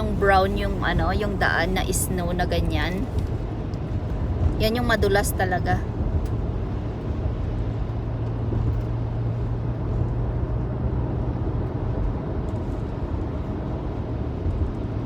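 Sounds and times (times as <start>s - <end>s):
tyres on slushy road: 0.0s - 8.8s
engine and road rumble: 0.0s - 15.0s.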